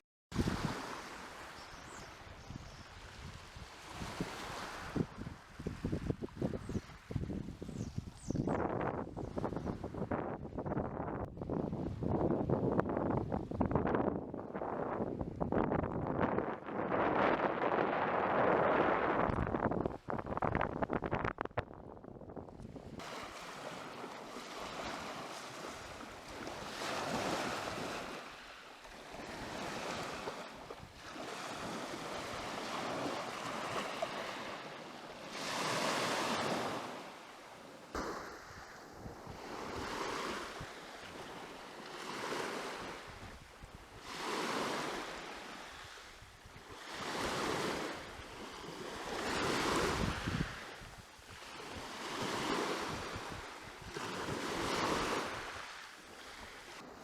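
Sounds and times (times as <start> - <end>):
wind rumble on microphone: 0.3 - 1.2, 1.8 - 28.2, 38.0 - 57.0
sea waves washing onto shore: 23.0 - 57.0.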